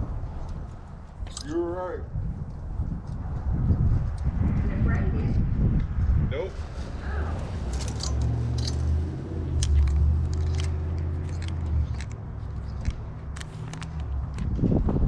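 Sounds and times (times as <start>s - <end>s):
vehicle engine rumbling: 0.0s - 5.3s, 5.9s - 15.0s
light clicks and rattles: 0.4s - 1.8s, 7.6s - 14.8s.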